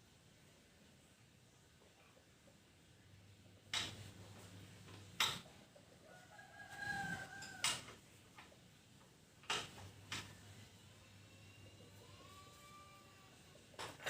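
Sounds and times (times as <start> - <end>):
rooster crowing: 6.0 - 7.9, 11.3 - 13.8.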